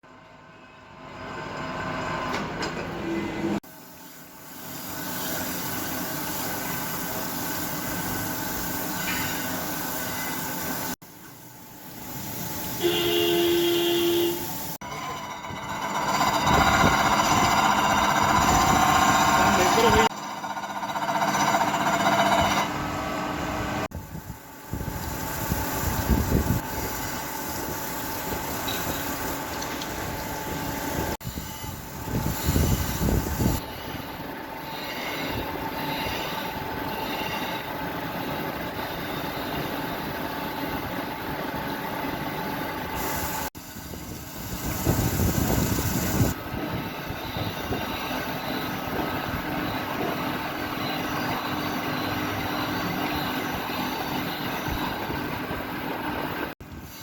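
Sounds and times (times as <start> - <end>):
grinding machine grinding metal: 14.8 - 23.9.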